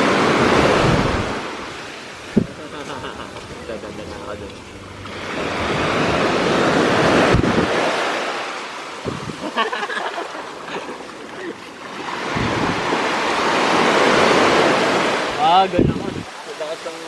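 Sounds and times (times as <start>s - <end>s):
sea waves breaking on beach: 0.0s - 17.0s
wind on microphone: 0.3s - 2.6s, 7.0s - 7.8s, 9.0s - 9.4s, 12.4s - 13.0s, 15.7s - 16.3s.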